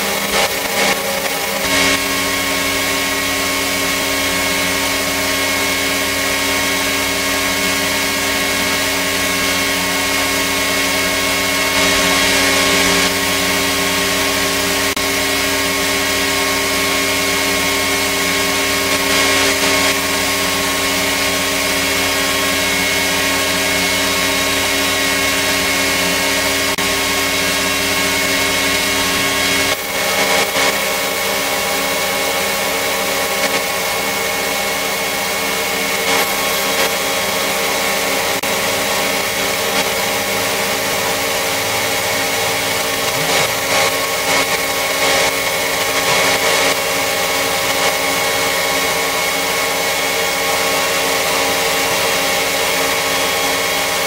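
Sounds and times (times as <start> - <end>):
power tool motor whining: 0.0 - 54.0.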